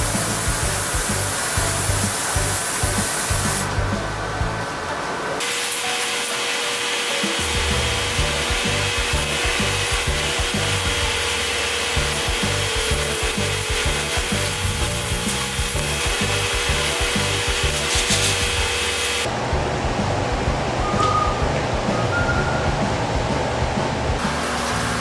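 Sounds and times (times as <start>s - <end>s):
background music with bass line: 0.0s - 4.7s, 7.4s - 25.0s
sanding on car bodywork: 7.8s - 19.3s.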